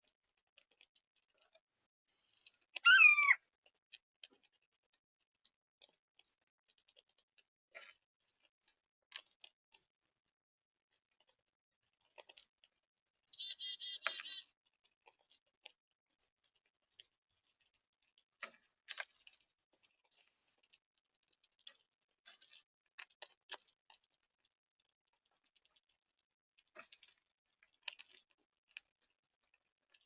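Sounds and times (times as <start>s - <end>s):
faint clicks and ticks: 0.0s - 13.4s, 14.0s - 30.0s
bird chirps: 2.4s - 3.4s, 13.3s - 14.4s
repeated high bird calls: 2.4s - 3.4s, 13.3s - 14.5s.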